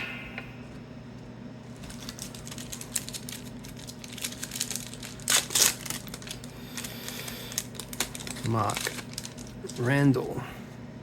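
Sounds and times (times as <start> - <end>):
foil wrapper ripping: 1.7 - 10.2
foil wrapper crinkling: 1.7 - 10.3.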